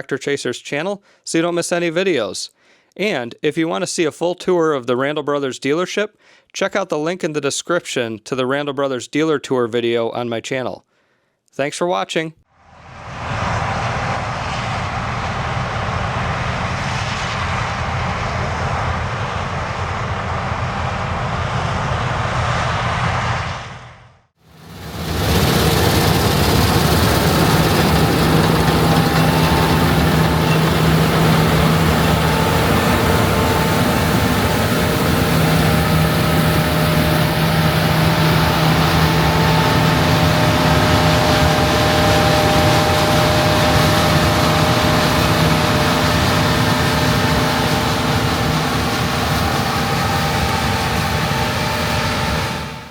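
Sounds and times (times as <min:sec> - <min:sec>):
diesel engine running: 0:24.5 - 0:52.9
held tones: 0:25.6 - 0:52.8.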